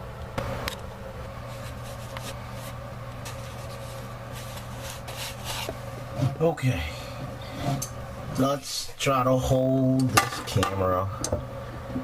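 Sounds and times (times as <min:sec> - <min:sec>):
steady low hum: 0:00.0 - 0:12.0
hands and tools scraping: 0:01.5 - 0:06.4, 0:07.3 - 0:08.0.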